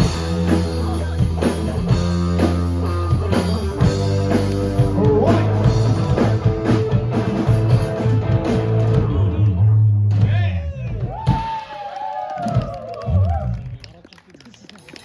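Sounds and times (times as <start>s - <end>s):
live rock band playing: 0.0s - 10.1s.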